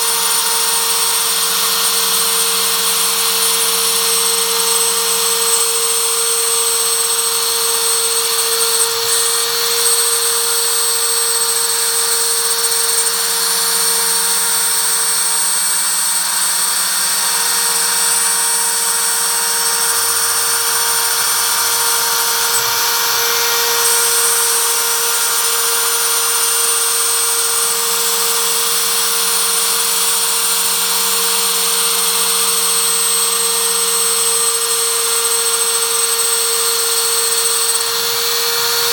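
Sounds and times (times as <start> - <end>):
router spindle milling plywood: 0.0 - 38.9.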